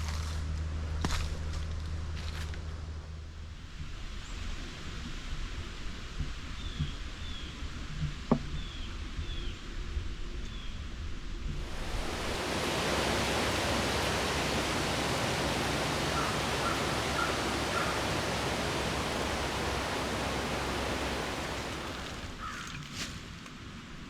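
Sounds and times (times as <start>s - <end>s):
strong gust of wind: 11.6s - 22.5s.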